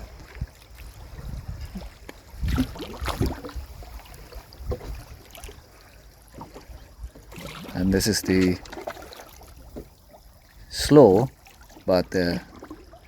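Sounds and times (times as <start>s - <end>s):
boat low rumble: 0.0s - 13.0s
water splashing: 0.0s - 13.0s.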